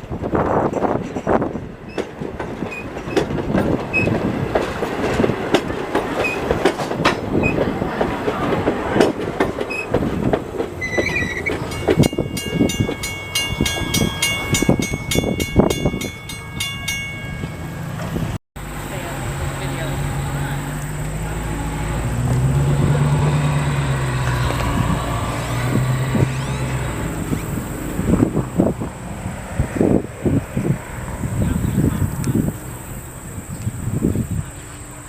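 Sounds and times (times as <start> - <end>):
railroad cars clattering over joints: 0.0 - 35.0
high steady tones: 10.8 - 28.2.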